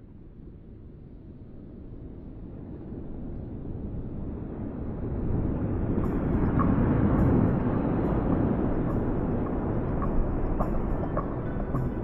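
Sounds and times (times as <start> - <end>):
train rumbling: 5.5 - 12.0.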